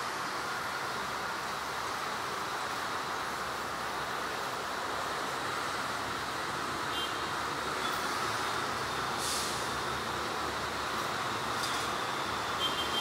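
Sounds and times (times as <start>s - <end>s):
brief hiss: 9.1s - 9.8s.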